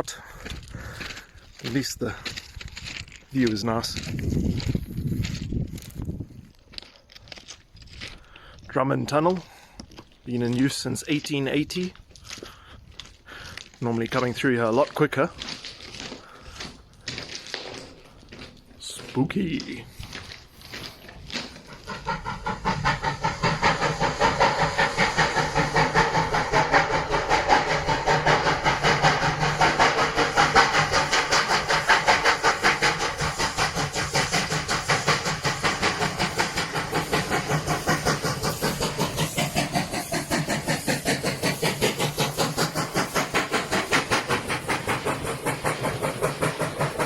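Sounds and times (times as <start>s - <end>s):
steam locomotive chuffing: 0.0s - 6.0s, 7.9s - 47.0s
steam hissing: 19.0s - 47.0s.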